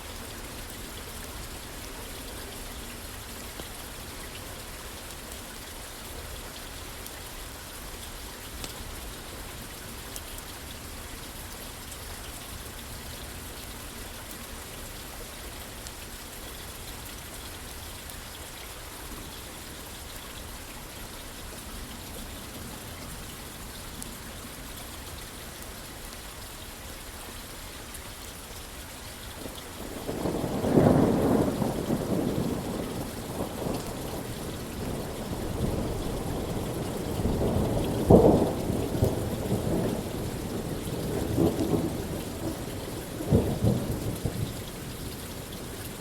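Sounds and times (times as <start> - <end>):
steady rain falling: 0.0 - 46.0.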